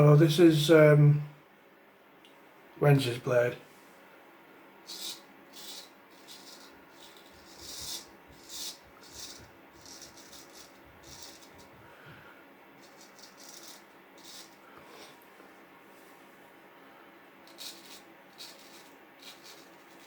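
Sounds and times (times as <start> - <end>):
scratchy rustles of razor handling: 4.9 - 11.7, 12.8 - 15.2, 17.5 - 20.0.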